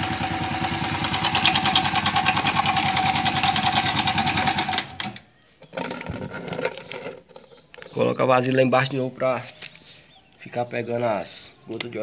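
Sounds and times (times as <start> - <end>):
motorcycle engine idling: 0.0 - 5.0.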